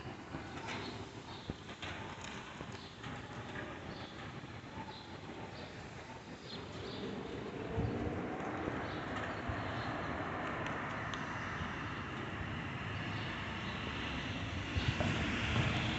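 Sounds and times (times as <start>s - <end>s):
jet engines running: 0.0s - 15.9s.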